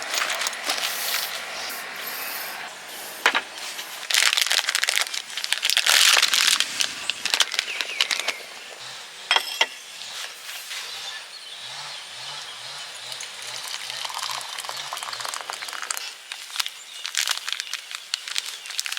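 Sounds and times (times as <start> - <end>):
crinkling and rustling: 0.0 - 1.6, 3.2 - 8.8, 15.4 - 18.9.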